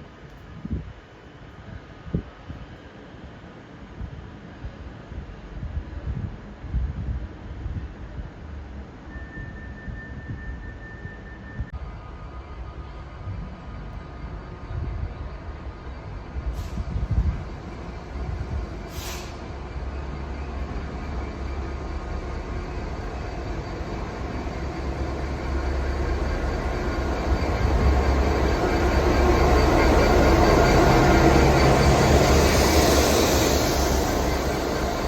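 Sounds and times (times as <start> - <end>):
train rumbling: 0.0 - 35.0
high hiss: 16.5 - 35.0.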